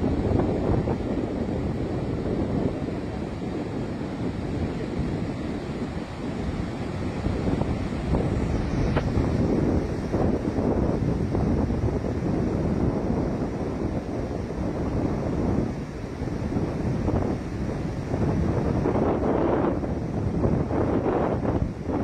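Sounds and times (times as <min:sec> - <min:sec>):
water rushing: 0:00.0 - 0:22.0
wind buffeting microphone: 0:00.0 - 0:22.0.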